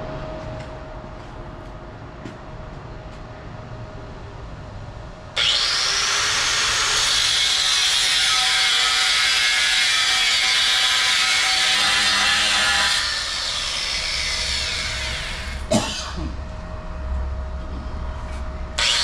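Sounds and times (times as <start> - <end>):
grinder cutting metal tubing: 5.4 - 16.2, 18.8 - 19.0.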